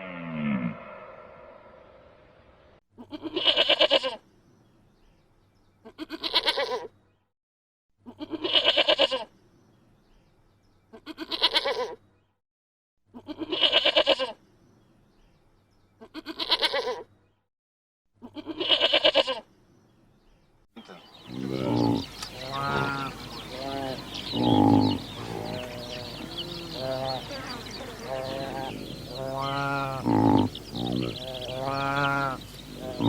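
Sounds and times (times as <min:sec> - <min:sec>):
farm animal bleating: 0:03.1 - 0:04.2, 0:05.9 - 0:06.8, 0:08.1 - 0:09.3, 0:11.0 - 0:11.9, 0:13.2 - 0:14.4, 0:16.0 - 0:17.0, 0:18.2 - 0:19.4, 0:21.3 - 0:33.0.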